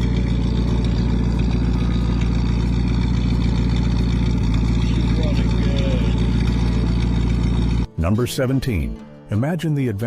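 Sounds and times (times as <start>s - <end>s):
car engine idling: 0.0s - 7.9s.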